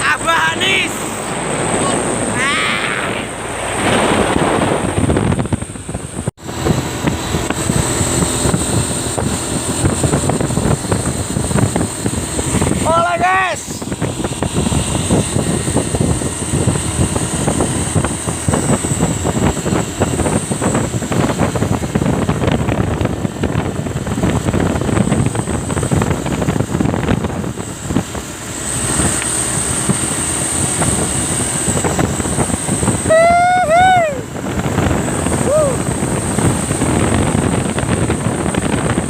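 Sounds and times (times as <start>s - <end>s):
short rising and dipping tone: 0.0s - 7.5s
road noise: 0.0s - 39.0s
truck engine: 0.0s - 39.0s.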